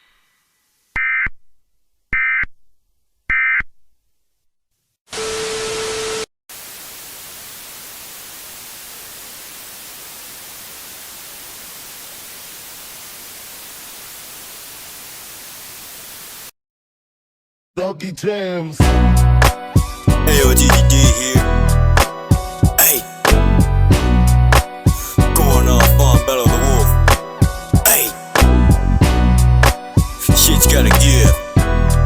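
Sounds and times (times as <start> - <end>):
static hiss: 5.2 - 16.5, 22.7 - 23.2, 27.8 - 28.3
noise burst with low tone: 6.5 - 16.5.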